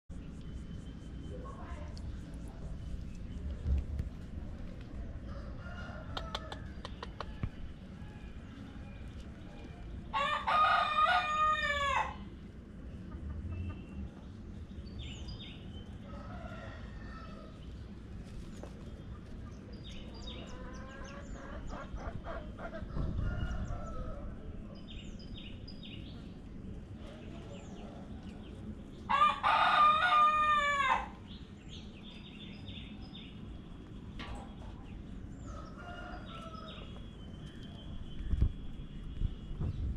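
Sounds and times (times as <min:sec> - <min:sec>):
chickens clucking: 0:03.4 - 0:08.0, 0:12.8 - 0:14.5, 0:17.9 - 0:24.5
rooster crowing: 0:05.2 - 0:08.4, 0:10.1 - 0:12.2, 0:16.0 - 0:17.6, 0:29.1 - 0:31.2, 0:35.4 - 0:37.0.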